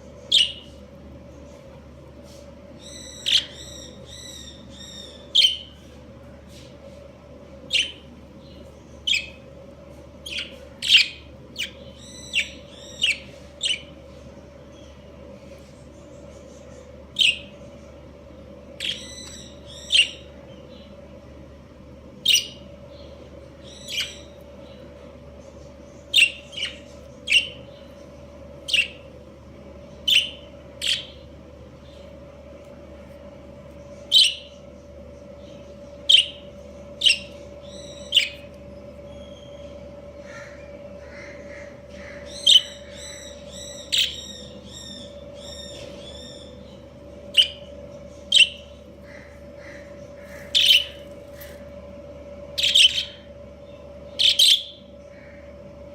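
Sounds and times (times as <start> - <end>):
steady low hum: 0.0 - 55.9
budgerigars chirping: 0.3 - 0.8, 2.8 - 5.7, 7.7 - 8.0, 10.3 - 13.9, 22.2 - 22.6, 26.1 - 27.7, 28.7 - 29.1, 30.1 - 31.2, 34.1 - 34.6, 36.1 - 38.5, 41.0 - 51.5, 52.6 - 53.3, 54.2 - 54.8.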